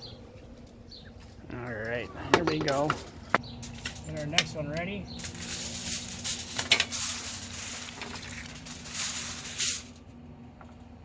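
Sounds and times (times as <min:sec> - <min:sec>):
aluminium foil crinkling: 0:05.2 - 0:10.0.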